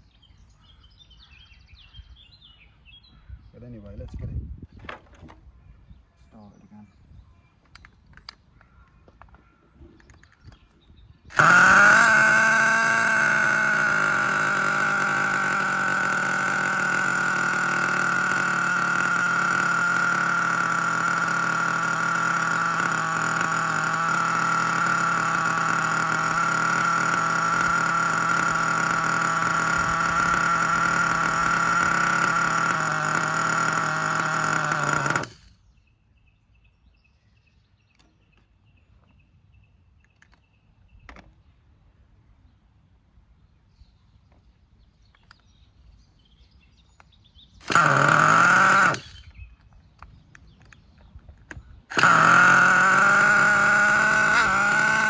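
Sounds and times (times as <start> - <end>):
nitro rc engine running: 11.3 - 35.6, 47.6 - 49.6, 51.5 - 55.0.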